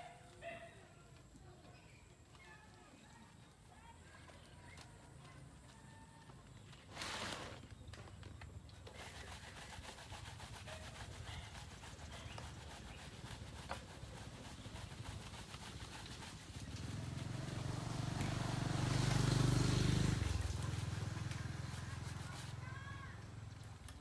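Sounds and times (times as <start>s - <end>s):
small engine running: 8.9s - 24.0s.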